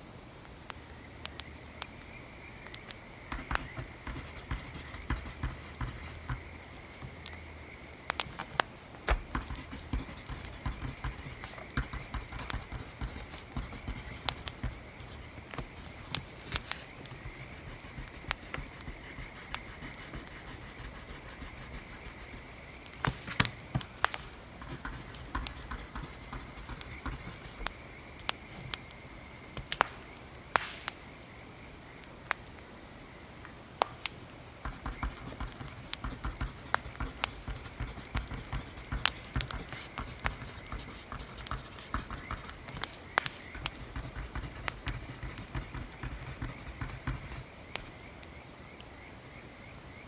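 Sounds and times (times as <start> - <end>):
faint steady hiss: 0.0 - 50.0
wood fire crackling: 0.4 - 31.3, 32.0 - 48.3
pen writing on paper: 3.3 - 6.5, 8.3 - 27.7, 34.7 - 47.5.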